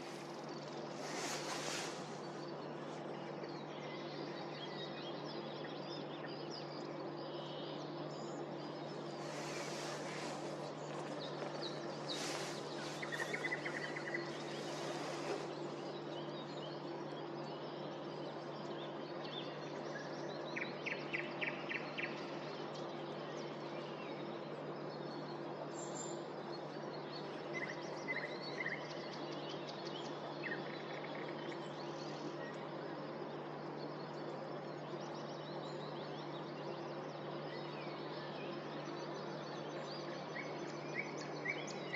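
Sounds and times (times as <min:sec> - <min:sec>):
distant town hum: 0:00.0 - 0:04.6, 0:07.9 - 0:20.8
songbirds singing: 0:00.0 - 0:41.9.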